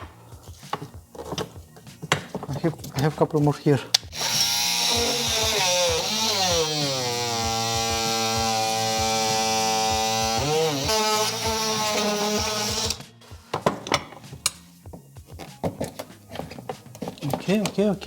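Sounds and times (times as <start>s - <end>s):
handling clicks and knocks: 0.0s - 4.1s, 13.5s - 18.0s
power tool cutting plastic: 4.1s - 13.3s.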